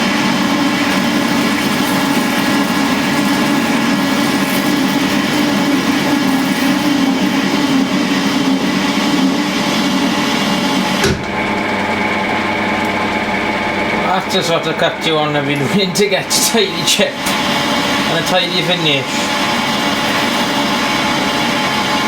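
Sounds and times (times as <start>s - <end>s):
metal lathe drone with gear whine: 0.0s - 22.0s.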